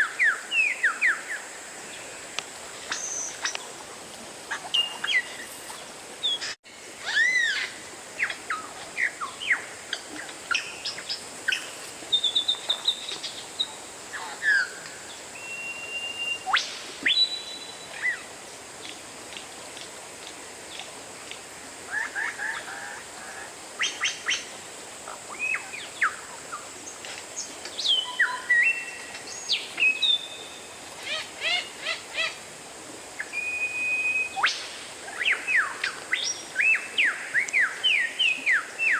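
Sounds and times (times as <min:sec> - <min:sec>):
bird singing whistles: 0:15.4 - 0:18.2, 0:27.8 - 0:30.6, 0:33.2 - 0:34.6.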